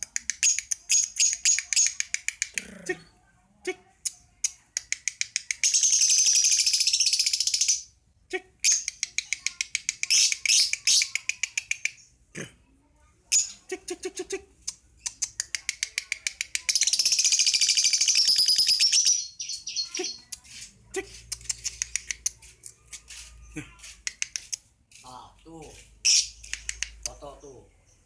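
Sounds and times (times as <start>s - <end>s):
lovebird chirping: 16.6s - 20.7s.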